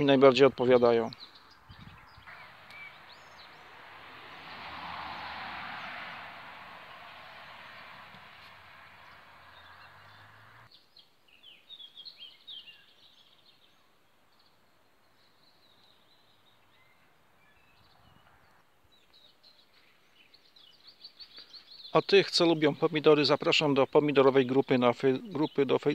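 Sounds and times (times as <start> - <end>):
faint high bird chirps: 1.1 - 3.7.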